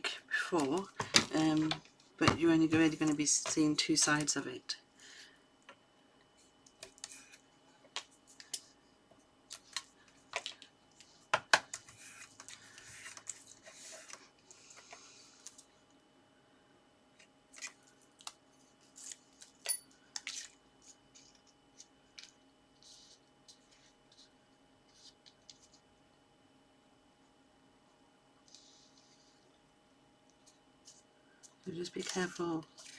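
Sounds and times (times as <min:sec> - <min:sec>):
card stock being folded: 0:31.7 - 0:32.9
paper rustling: 0:31.8 - 0:32.9.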